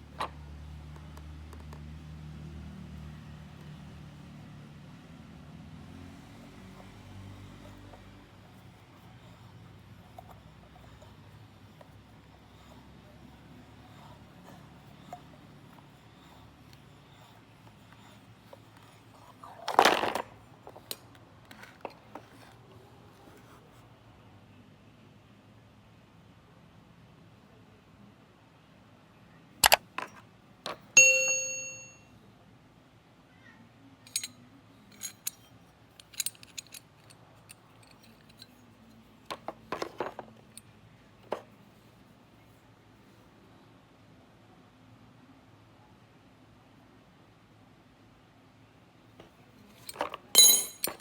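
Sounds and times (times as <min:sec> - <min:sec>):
tools and parts clicking: 0:07.4 - 0:22.5, 0:29.6 - 0:32.0, 0:34.1 - 0:41.5, 0:49.6 - 0:51.0
metal tools clicking and clinking: 0:29.6 - 0:32.0, 0:34.1 - 0:41.4, 0:49.6 - 0:51.0
hard parts scraping rattle: 0:34.1 - 0:34.3, 0:34.9 - 0:40.6, 0:49.6 - 0:51.0.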